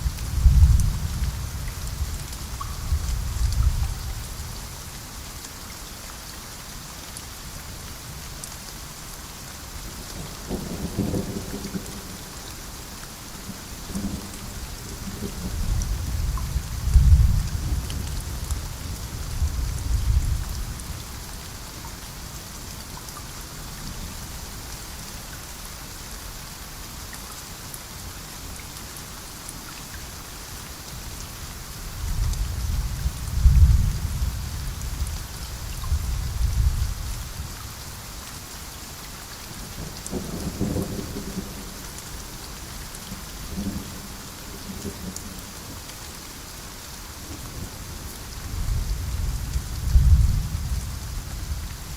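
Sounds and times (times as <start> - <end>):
heavy rain: 0.0 - 51.9
thunder rumbling: 48.4 - 51.7.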